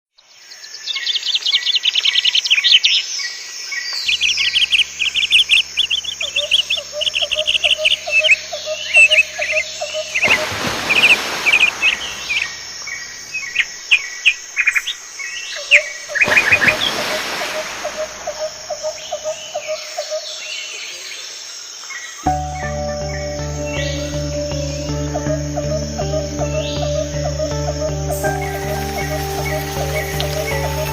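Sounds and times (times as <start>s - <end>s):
songbirds chirping and singing: 3.8s - 21.3s, 22.0s - 30.9s
high-pitched insect buzz: 4.1s - 20.1s, 22.3s - 30.9s.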